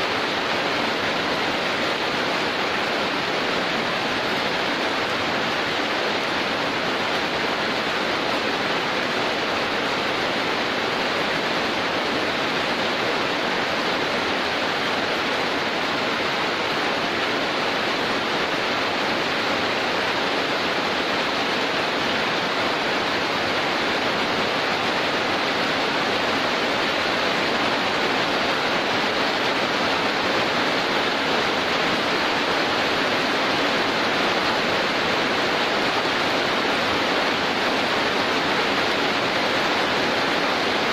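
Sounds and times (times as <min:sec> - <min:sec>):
heavy rain downpour: 0:00.0 - 0:40.9.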